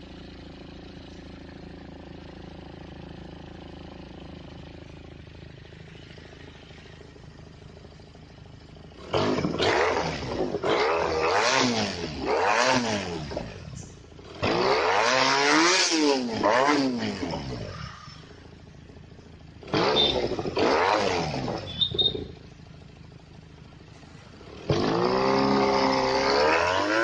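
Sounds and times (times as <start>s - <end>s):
motorcycle engine idling and revving: 0.0s - 27.0s.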